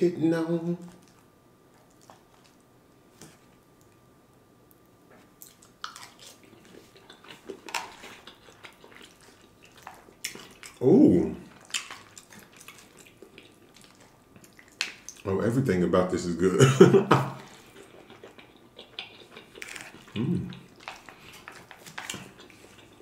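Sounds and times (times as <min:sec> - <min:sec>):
wet chewing and lip smacks: 0:00.9 - 0:04.0, 0:04.7 - 0:10.8, 0:11.4 - 0:15.3, 0:17.4 - 0:23.0
low vocal grunt falling in pitch: 0:20.2 - 0:20.5.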